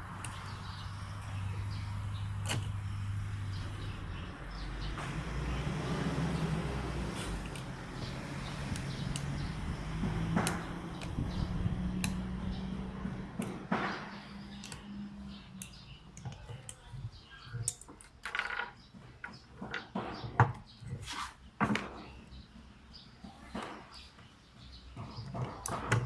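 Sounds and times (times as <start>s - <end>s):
metal tools clicking and tapping: 12.0s - 20.6s.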